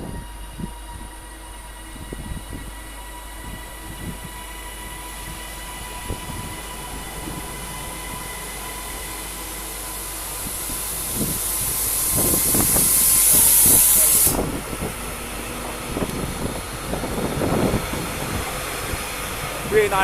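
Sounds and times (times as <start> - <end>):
steady high whine: 0.0 - 20.0
train wheels clunking and rumbling: 0.0 - 20.0
air hiss: 7.2 - 16.6.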